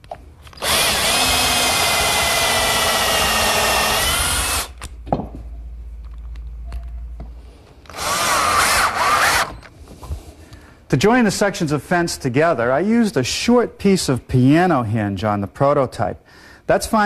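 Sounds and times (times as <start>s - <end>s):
electric drill running: 0.5s - 4.8s, 7.9s - 9.6s.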